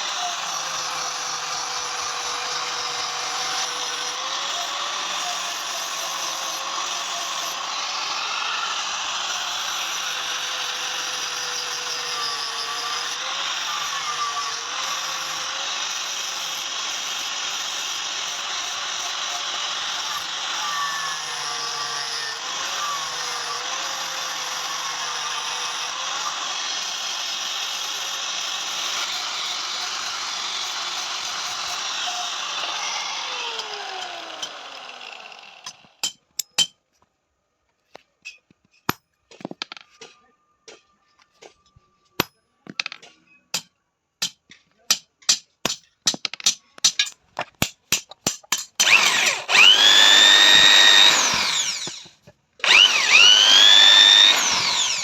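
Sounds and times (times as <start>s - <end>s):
power tool whining: 0.0s - 36.0s, 48.8s - 55.0s
power tool working on iron: 0.0s - 36.0s, 48.8s - 55.0s.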